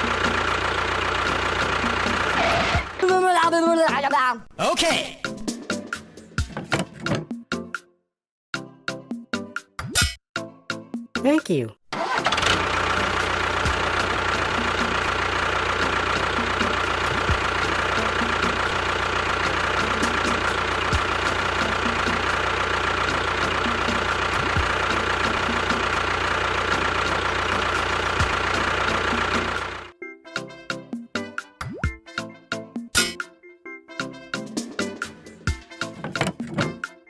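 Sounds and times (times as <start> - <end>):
engine idling with whine: 0.0 - 3.0, 12.0 - 29.9.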